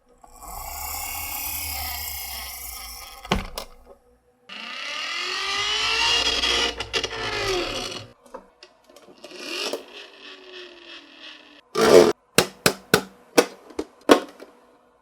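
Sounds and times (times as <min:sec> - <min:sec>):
marbles rolling on track: 0:00.3 - 0:03.8, 0:04.9 - 0:08.2, 0:09.1 - 0:12.0.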